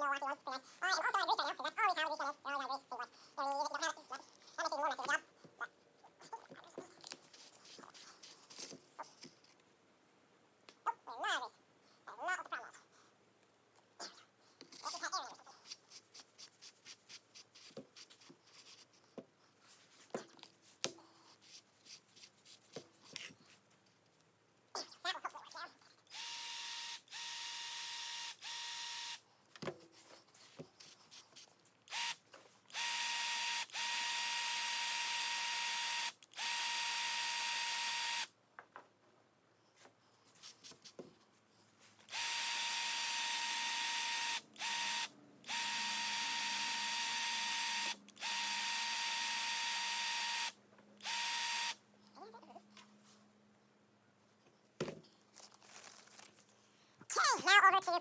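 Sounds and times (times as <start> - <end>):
powered grease gun whining: 42.1 - 51.8.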